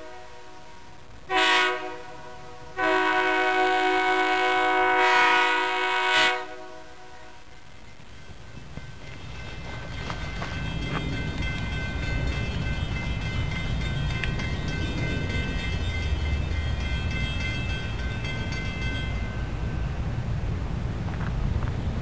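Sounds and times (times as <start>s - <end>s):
electric train rumbling: 0.0s - 22.0s
steady high tones: 7.4s - 20.0s.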